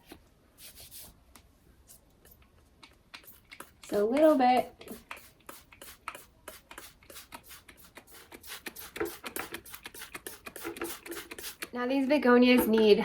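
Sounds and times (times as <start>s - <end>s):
spray bottle hissing: 4.9s - 11.7s.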